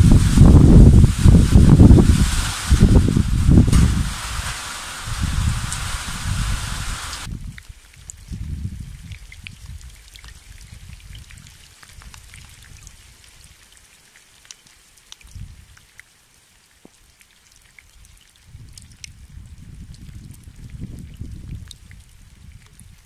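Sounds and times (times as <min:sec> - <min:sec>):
raindrops ticking: 0:00.0 - 0:07.3
wind rumbling on microphone: 0:00.0 - 0:13.6, 0:15.2 - 0:15.8, 0:18.5 - 0:23.0.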